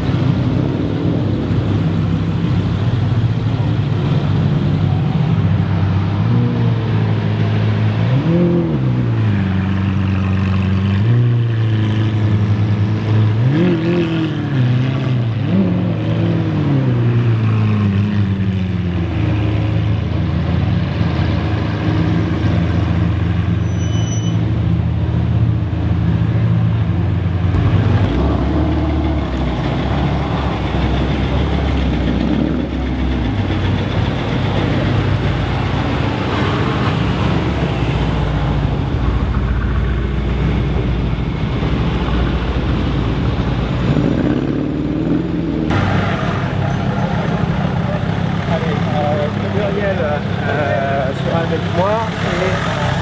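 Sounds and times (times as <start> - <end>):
car engines running: 0.0 - 53.0
deeper car engine: 24.4 - 53.0.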